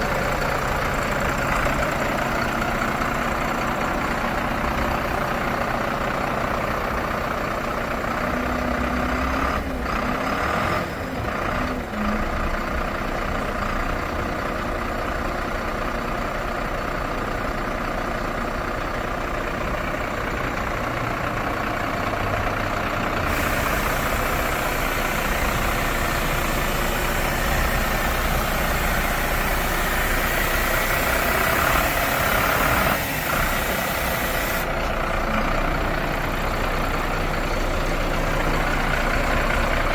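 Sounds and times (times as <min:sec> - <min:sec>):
diesel engine idling: 0:00.0 - 0:39.9
high hiss: 0:23.3 - 0:34.7.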